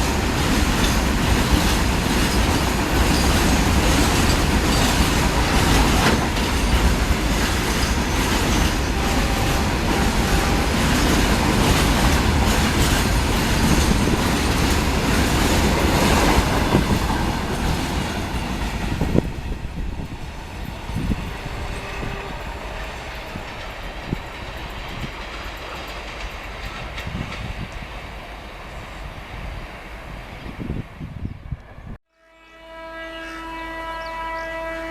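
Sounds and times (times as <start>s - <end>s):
wheels clattering over rail joints: 0.0s - 19.5s
train passing at speed: 0.0s - 32.0s.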